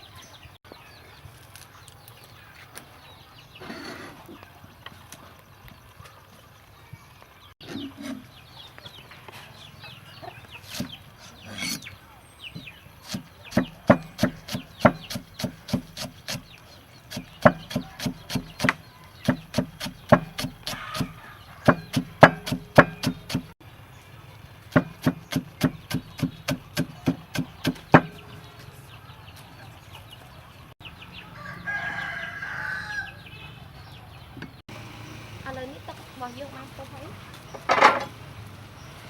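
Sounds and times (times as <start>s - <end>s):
rapid sharp knocks: 13.1s - 16.4s, 17.1s - 23.6s.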